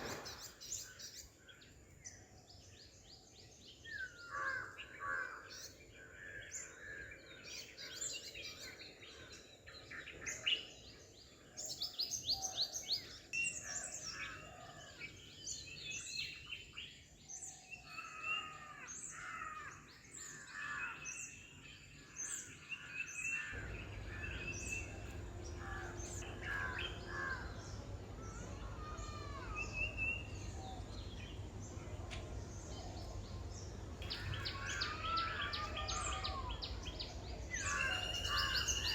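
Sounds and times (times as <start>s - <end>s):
small birds chirping and singing: 0.0s - 38.9s
low steady rumble: 23.6s - 29.0s.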